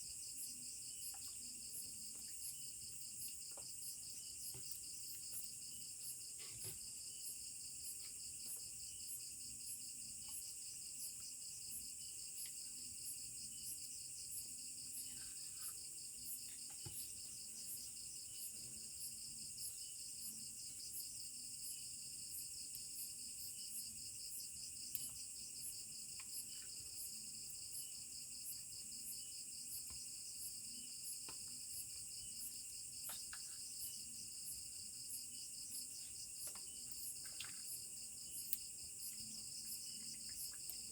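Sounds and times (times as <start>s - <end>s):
insects trilling: 0.1s - 40.9s.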